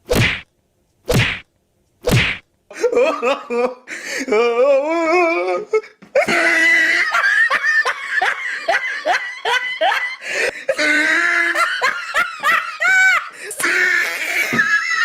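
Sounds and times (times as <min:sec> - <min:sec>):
people laughing hard: 0:02.7 - 0:03.9, 0:06.2 - 0:15.0
wavering vocal cry: 0:04.3 - 0:07.3, 0:09.8 - 0:11.9, 0:12.8 - 0:15.0.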